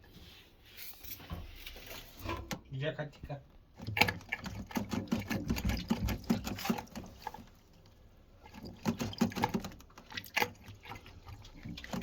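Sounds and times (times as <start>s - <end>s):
water splashing and pattering: 3.7s - 12.0s.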